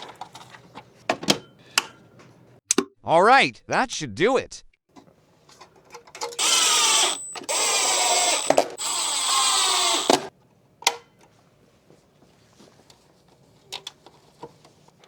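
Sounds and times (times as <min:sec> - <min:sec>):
electric screwdriver driving screws: 0:06.3 - 0:10.3.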